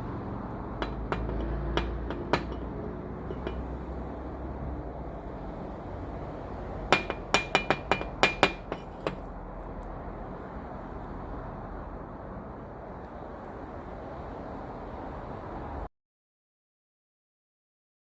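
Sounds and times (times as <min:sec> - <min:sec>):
metallic clinks and taps: 0:00.8 - 0:03.8, 0:07.0 - 0:09.3.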